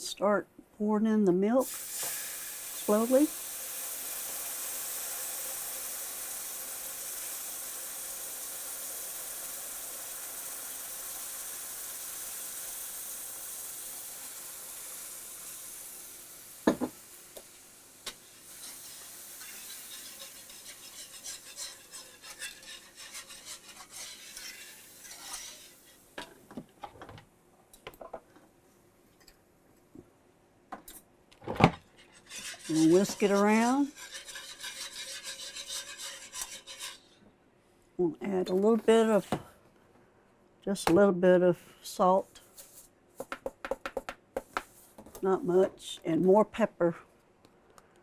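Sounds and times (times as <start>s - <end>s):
sizzling in a skillet: 1.6s - 26.3s, 32.1s - 37.2s
whisk scraping a pan: 18.5s - 26.0s, 31.9s - 37.2s.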